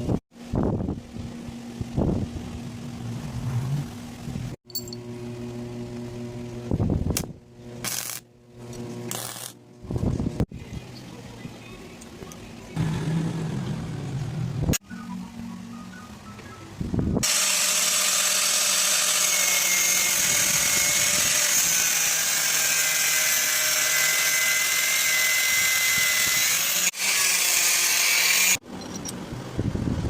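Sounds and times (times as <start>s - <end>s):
power tool whining: 17.2s - 28.6s.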